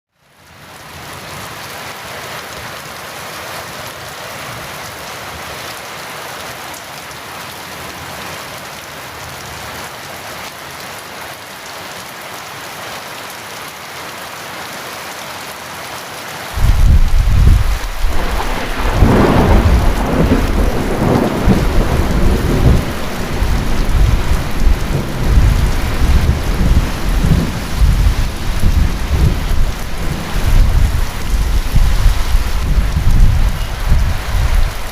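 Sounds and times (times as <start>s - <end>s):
heavy rain falling: 0.3s - 34.9s
thunder rumbling and cracking: 16.6s - 34.9s.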